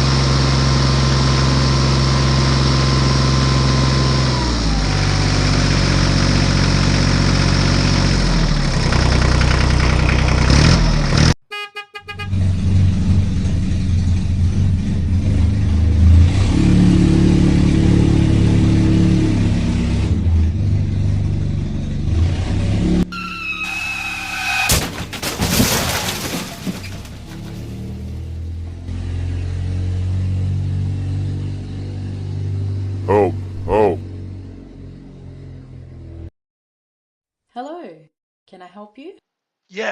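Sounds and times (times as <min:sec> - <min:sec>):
horn-like held tone: 0:11.5 - 0:12.3
vehicle engine revving: 0:12.1 - 0:23.1.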